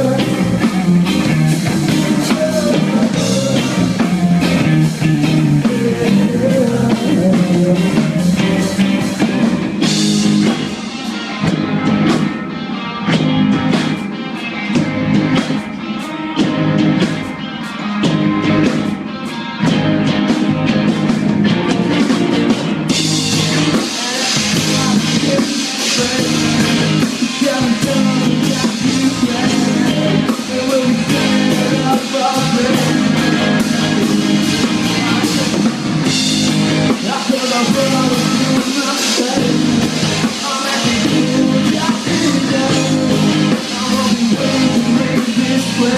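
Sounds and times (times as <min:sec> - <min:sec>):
person singing: 0:00.0 - 0:10.0, 0:23.6 - 0:35.7, 0:36.9 - 0:45.9
rock band playing live: 0:00.0 - 0:45.9.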